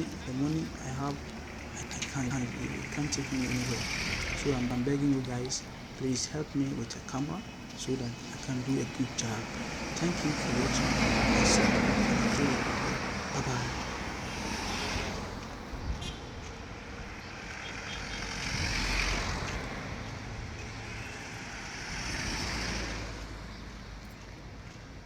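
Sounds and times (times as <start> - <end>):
vehicles passing: 0.0 - 25.0.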